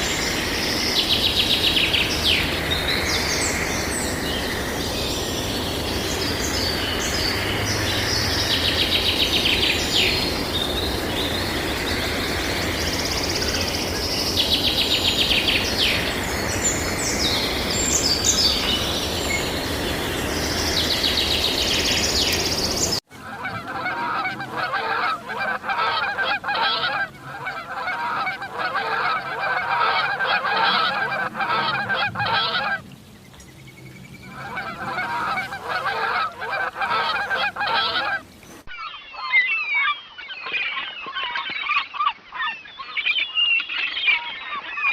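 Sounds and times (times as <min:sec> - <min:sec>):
small birds chirping: 0:00.0 - 0:23.5
waterfowl flock calling: 0:00.0 - 0:33.0, 0:34.2 - 0:44.9.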